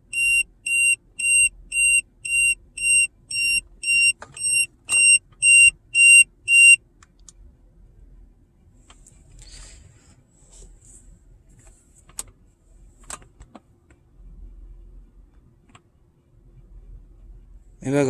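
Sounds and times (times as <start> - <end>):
high-pitched alarm beeps: 0.0 - 6.8.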